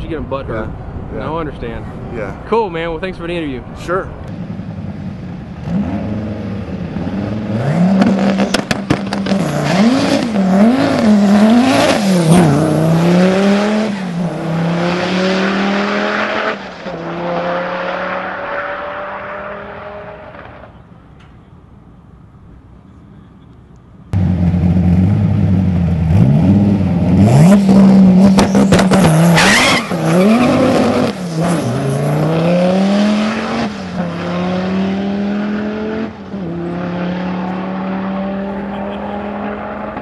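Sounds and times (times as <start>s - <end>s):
car engine revving: 4.2s - 20.8s, 24.2s - 40.0s
tyre squeal: 28.4s - 32.0s.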